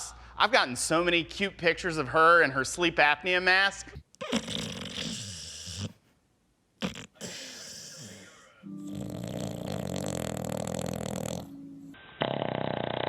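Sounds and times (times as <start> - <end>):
dogs snoring: 4.2 - 6.0, 6.8 - 13.0.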